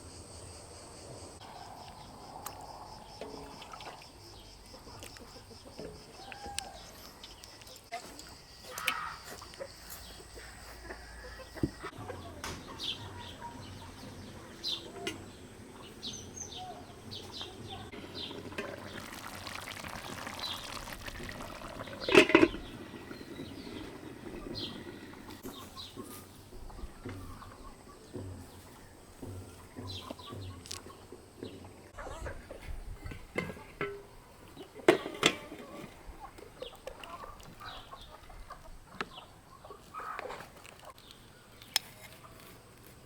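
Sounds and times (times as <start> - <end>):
small birds chirping: 1.4 - 33.2, 36.1 - 42.6
chickens: 4.7 - 18.0, 22.0 - 41.1
liquid rushing noise: 18.1 - 22.1.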